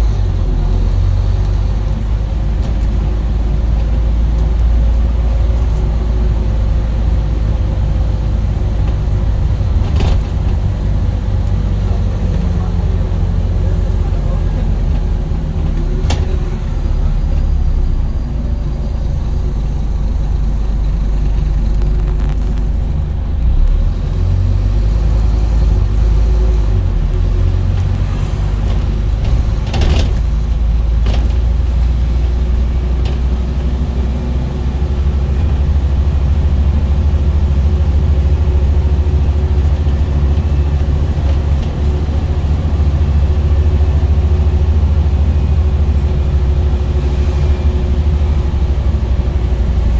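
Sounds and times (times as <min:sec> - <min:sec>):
bus diesel engine rumbling: 0:00.0 - 0:49.9
short knocks and rattles: 0:27.2 - 0:32.0.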